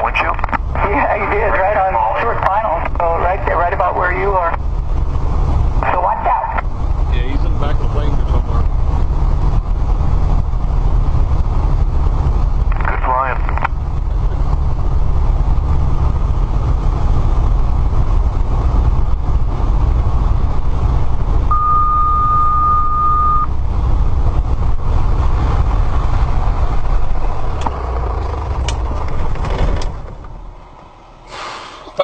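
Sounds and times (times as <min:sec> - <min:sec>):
aircraft engine and airflow rumble: 0:00.0 - 0:32.0
steady beep: 0:21.5 - 0:23.5.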